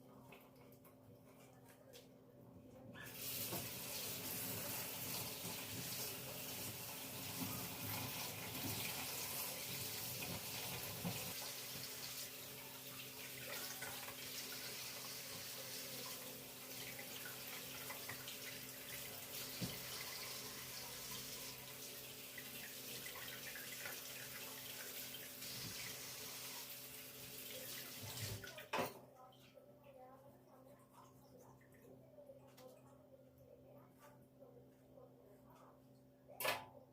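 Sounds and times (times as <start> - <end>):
water running from tap into sink: 3.0 - 28.9.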